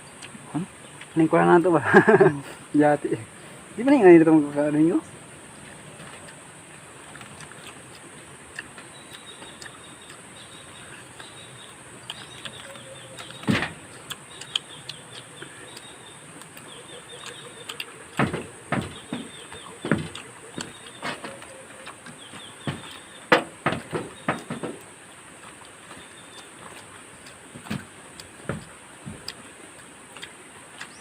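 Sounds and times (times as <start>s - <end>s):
bird chirps: 8.8s - 24.8s, 25.7s - 27.3s.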